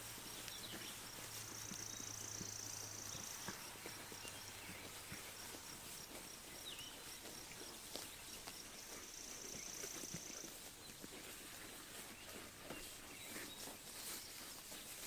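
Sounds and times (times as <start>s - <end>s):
sheep chewing grass: 0.0s - 15.0s
bird chirp: 0.3s - 11.0s.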